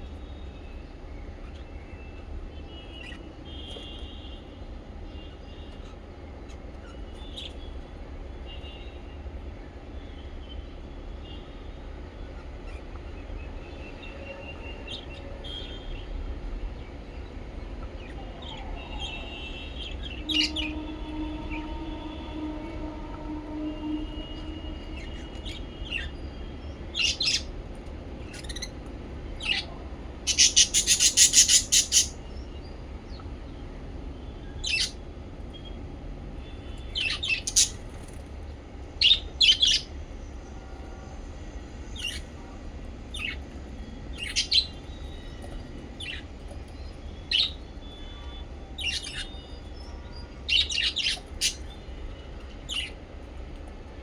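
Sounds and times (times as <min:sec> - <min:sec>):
parrots chirping: 0:25.1 - 0:27.5, 0:28.2 - 0:28.8, 0:30.3 - 0:32.2, 0:34.6 - 0:35.0, 0:36.8 - 0:38.2, 0:44.1 - 0:46.2, 0:48.8 - 0:51.8, 0:52.7 - 0:53.0
shrill parrot calls: 0:30.3 - 0:32.2, 0:37.0 - 0:37.8.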